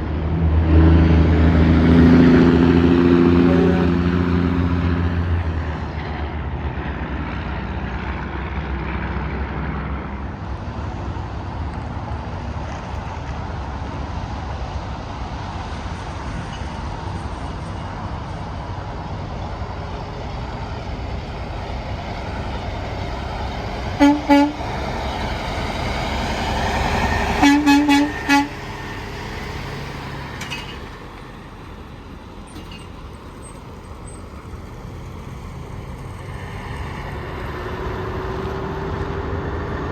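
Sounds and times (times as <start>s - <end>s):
highway traffic with trucks: 0.0s - 39.9s
truck horn honks: 3.2s - 4.4s, 24.0s - 24.8s, 27.3s - 28.7s.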